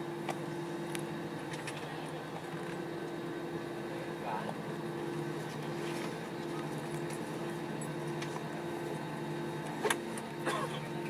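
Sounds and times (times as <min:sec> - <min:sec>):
airplane cabin drone: 0:00.0 - 0:11.0.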